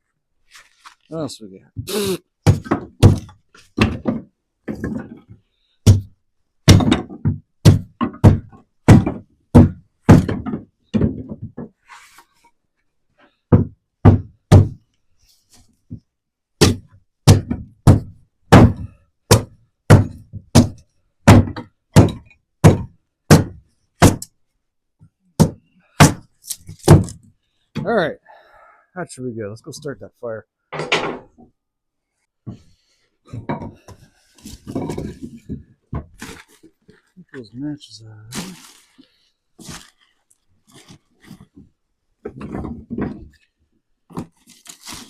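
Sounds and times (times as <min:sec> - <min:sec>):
wood being chopped: 0:02.4 - 0:05.0, 0:05.9 - 0:06.1, 0:16.6 - 0:24.3, 0:25.4 - 0:27.2.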